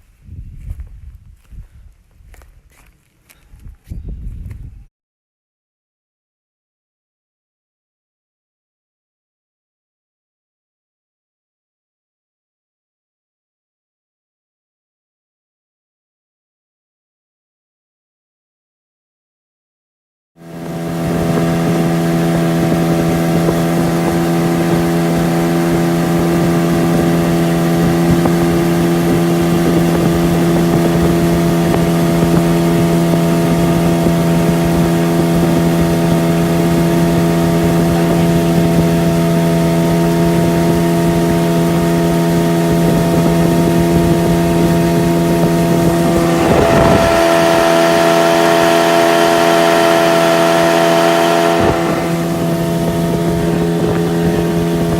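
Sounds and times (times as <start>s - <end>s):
wind buffeting microphone: 0.0s - 4.9s, 20.5s - 54.9s
outboard motor running: 20.4s - 54.9s.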